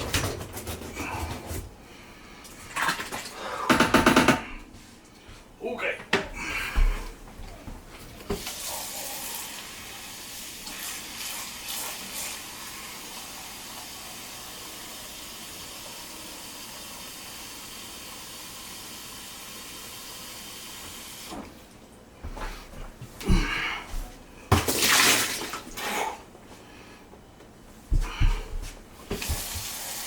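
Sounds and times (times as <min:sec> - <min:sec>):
water running: 0:06.4 - 0:21.8, 0:28.0 - 0:30.0.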